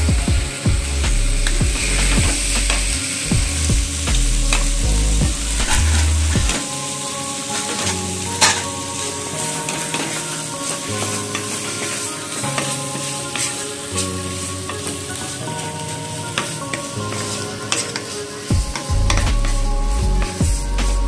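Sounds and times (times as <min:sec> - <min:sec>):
onions sizzling in oil: 0:00.0 - 0:21.0
soft background tune: 0:00.0 - 0:21.0
wooden spatula scraping pan: 0:05.6 - 0:06.7, 0:07.5 - 0:19.6.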